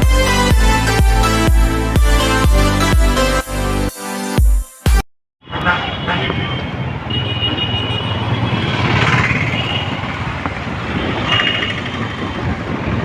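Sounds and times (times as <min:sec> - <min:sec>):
road noise: 0:00.0 - 0:03.9, 0:05.4 - 0:13.0
motorcycle engine drone: 0:07.4 - 0:13.0.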